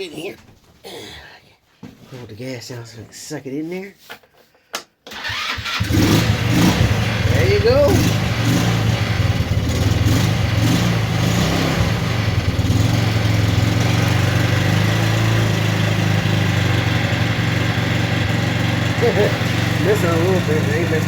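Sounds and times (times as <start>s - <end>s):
small engine idling and missing: 5.1s - 21.0s.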